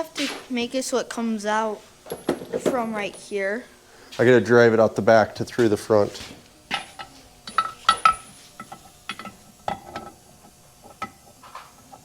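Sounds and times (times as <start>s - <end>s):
steel tools tapping metal: 6.7s - 10.2s, 10.8s - 12.0s.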